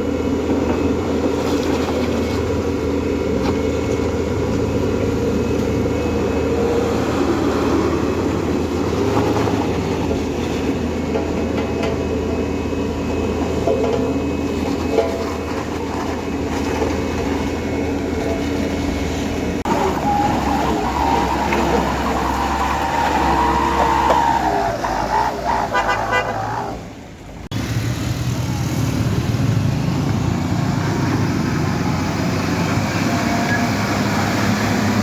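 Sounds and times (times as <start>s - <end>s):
heavy vehicle engines running: 0.0s - 35.0s
vehicle horn wavering tone: 25.7s - 26.6s.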